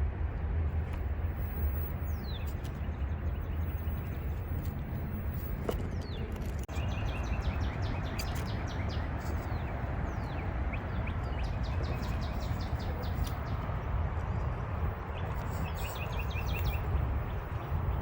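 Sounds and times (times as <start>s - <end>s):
birds chirping: 1.3s - 18.0s.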